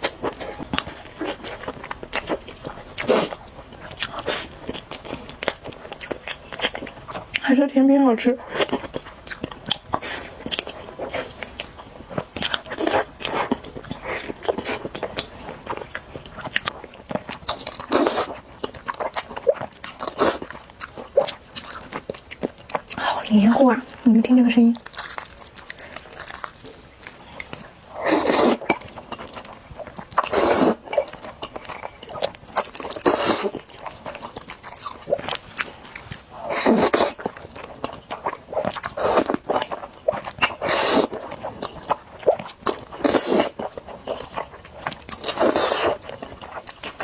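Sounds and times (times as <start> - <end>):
wet chewing: 0.0 - 7.5, 8.4 - 47.0
loud noodle slurps: 17.8 - 18.4, 20.1 - 20.5, 27.9 - 28.8, 30.2 - 31.0, 32.6 - 33.7, 36.3 - 37.3, 38.9 - 39.5, 40.5 - 41.2, 42.7 - 43.6, 45.2 - 46.0.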